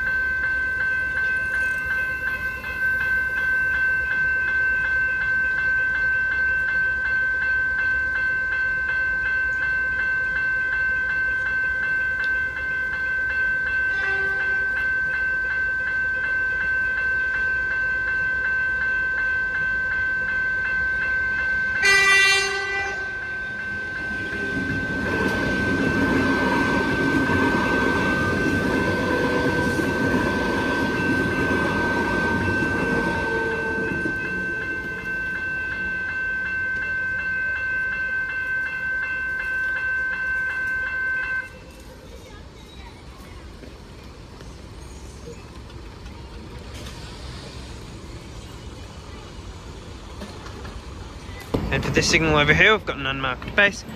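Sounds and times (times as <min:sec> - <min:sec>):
level crossing bell ringing: 0:00.0 - 0:41.8
train rumbling over crossing: 0:00.0 - 0:53.9
train horn: 0:13.9 - 0:14.7, 0:21.8 - 0:23.3, 0:24.2 - 0:34.8.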